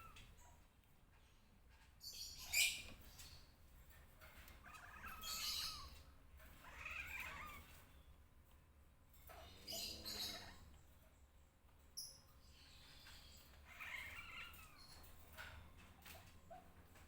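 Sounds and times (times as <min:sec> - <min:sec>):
cats crying shrilly: 0:04.6 - 0:06.0, 0:06.6 - 0:07.8, 0:13.6 - 0:14.8.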